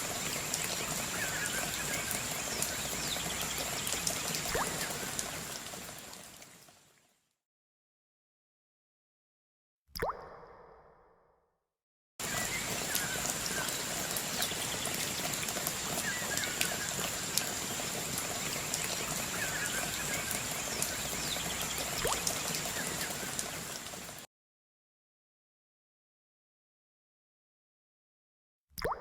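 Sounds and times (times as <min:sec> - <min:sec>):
rain falling: 0:00.0 - 0:06.8, 0:12.2 - 0:24.3
bird chirps: 0:12.3 - 0:17.6.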